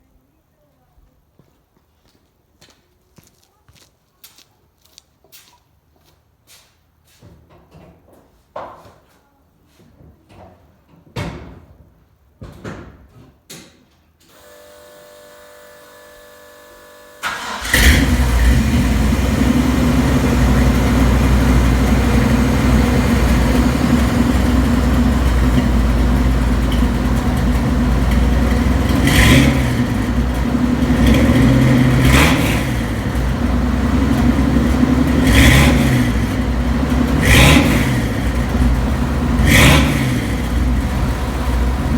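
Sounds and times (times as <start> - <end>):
engine starter cranking: 17.2 - 30.5
engine revving: 17.2 - 41.9
truck engine idling loudly: 17.3 - 41.9.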